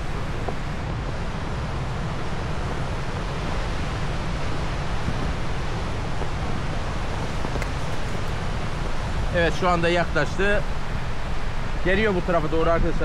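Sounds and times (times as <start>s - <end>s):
surf rushing: 0.0s - 13.0s
wind buffeting microphone: 0.0s - 13.0s.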